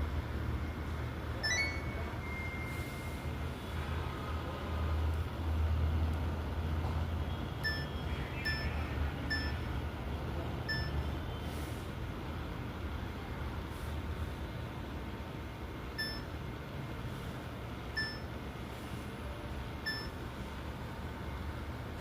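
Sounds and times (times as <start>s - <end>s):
washing machine beeps: 0.5s - 3.5s, 7.5s - 9.9s, 10.6s - 11.4s, 15.9s - 16.4s, 17.8s - 18.5s, 19.8s - 20.3s.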